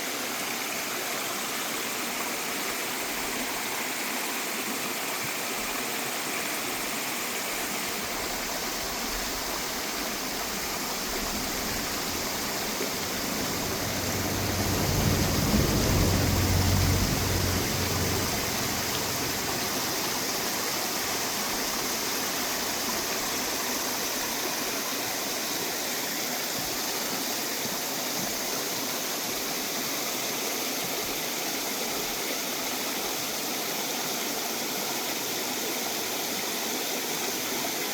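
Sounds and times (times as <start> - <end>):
water rushing over rocks: 0.0 - 37.9
low rumble: 11.1 - 21.8.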